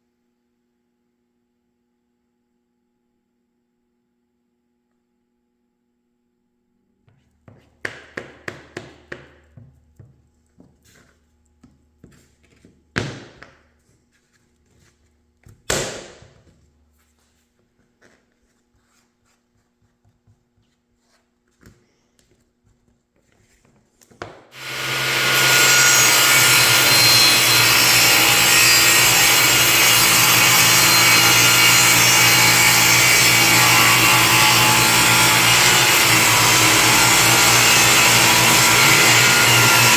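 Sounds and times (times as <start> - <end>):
power tool cutting wood: 24.6 - 39.9.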